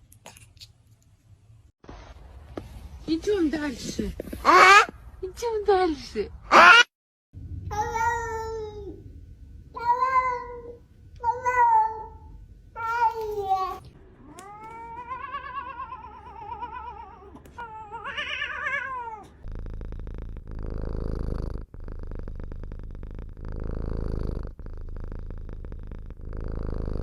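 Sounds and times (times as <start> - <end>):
cat purring: 7.7 - 27.0
cat meowing: 12.8 - 19.4.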